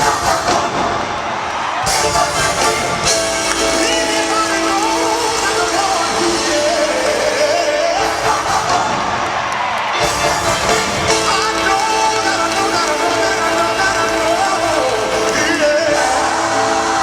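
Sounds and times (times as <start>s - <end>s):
gospel choir singing: 0.0s - 17.0s
instrumental accompaniment: 0.0s - 17.0s
solo voice singing: 1.9s - 9.3s, 10.1s - 17.0s.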